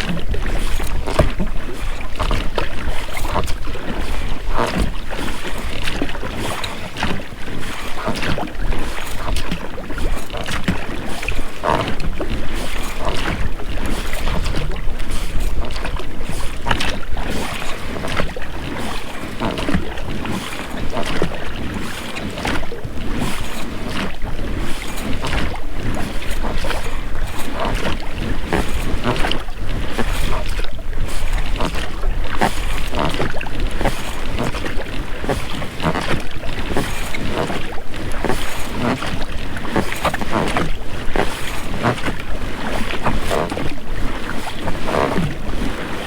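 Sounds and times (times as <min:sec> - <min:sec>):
wind on microphone: 0:00.0 - 0:06.6, 0:19.3 - 0:46.0
water splashing from oar strokes: 0:00.0 - 0:46.0.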